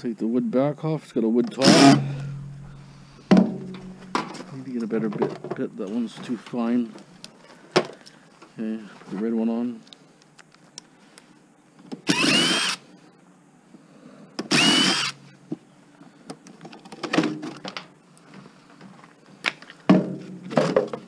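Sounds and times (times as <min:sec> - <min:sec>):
parts clicking and knocking: 0:01.5 - 0:05.6
power drill whining: 0:01.6 - 0:02.4, 0:12.1 - 0:12.8, 0:14.5 - 0:15.2.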